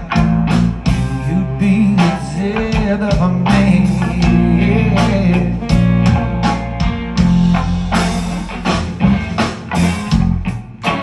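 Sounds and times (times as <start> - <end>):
bass: 0.0 - 11.0
guitar: 0.0 - 11.0
drum hits: 2.6 - 11.0.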